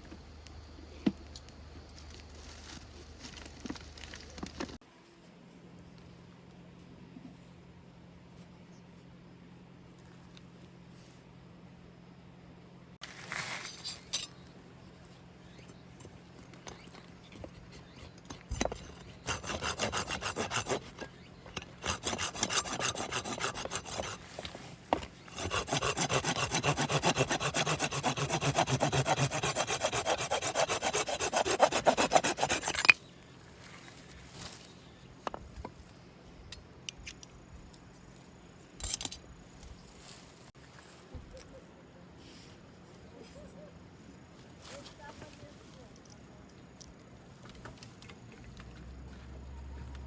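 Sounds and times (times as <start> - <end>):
hand saw rasping wood: 18.6 - 24.4, 25.3 - 32.9.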